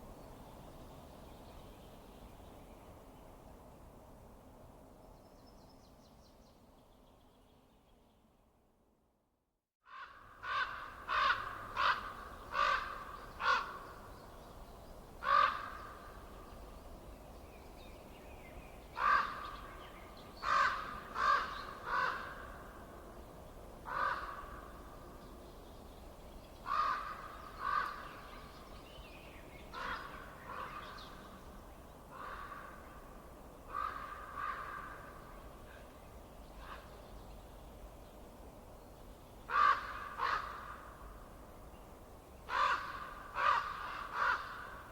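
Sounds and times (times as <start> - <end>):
faint background hiss: 10.9 - 44.9.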